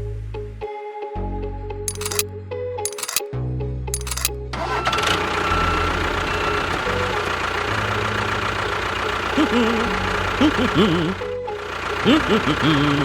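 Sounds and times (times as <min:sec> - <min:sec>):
small tractor engine idling: 0:04.6 - 0:13.0.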